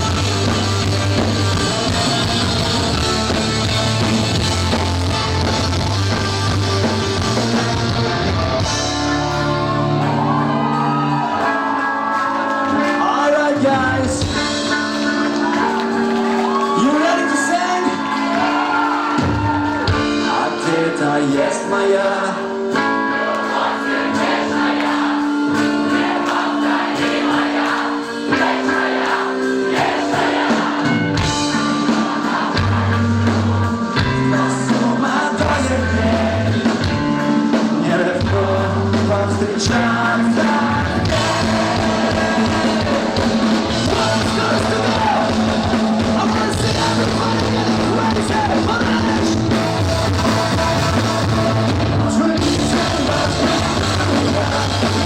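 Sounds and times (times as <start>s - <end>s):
heavy bass and drums: 0.0s - 10.7s, 30.6s - 55.0s
rock band playing: 0.0s - 55.0s
person singing: 19.8s - 23.0s, 33.8s - 55.0s.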